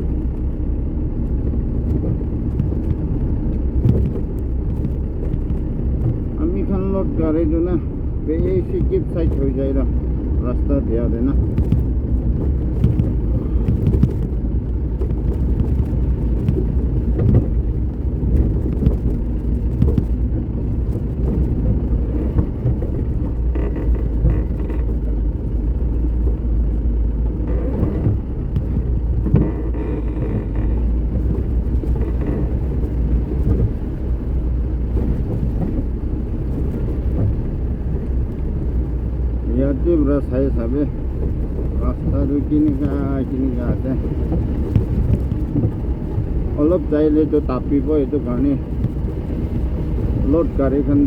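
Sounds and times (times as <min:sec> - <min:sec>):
vehicle engine and road noise: 0:00.0 - 0:51.0
short knocks: 0:01.8 - 0:06.4, 0:11.3 - 0:25.2, 0:27.2 - 0:38.5.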